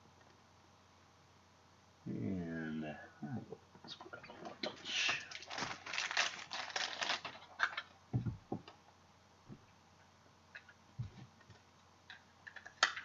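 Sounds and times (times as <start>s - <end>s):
cards rustling: 4.4s - 7.8s
soft low thumps: 8.1s - 8.7s.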